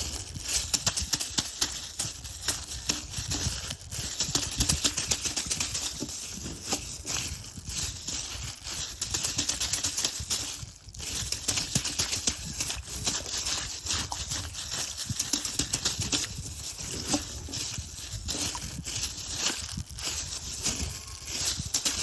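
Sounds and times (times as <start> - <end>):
slime squishing in plastic bag: 0.0 - 22.0.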